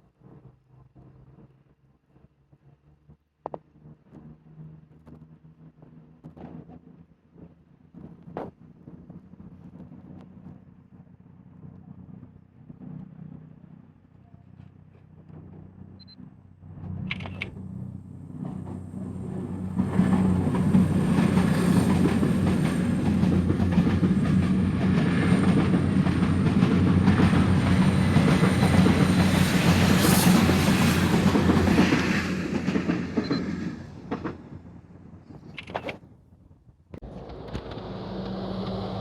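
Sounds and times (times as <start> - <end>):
train wheels on track: 16.8 - 36.0, 37.0 - 39.0.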